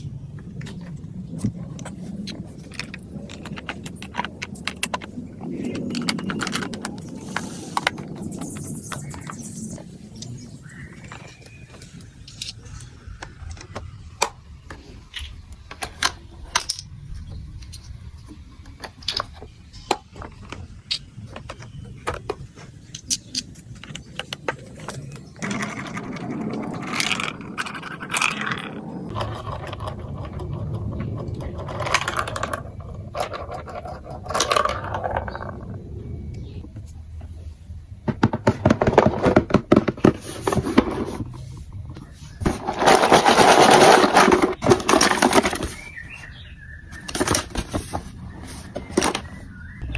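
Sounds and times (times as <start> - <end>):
marbles rattling and rolling: 22.9 - 35.9, 42.5 - 45.8
plastic marble run clicking: 42.6 - 45.7.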